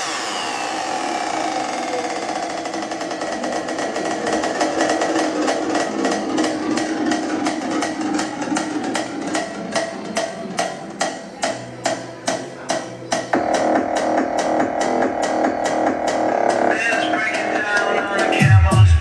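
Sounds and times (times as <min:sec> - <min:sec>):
music with percussive beat: 0:00.0 - 0:19.0.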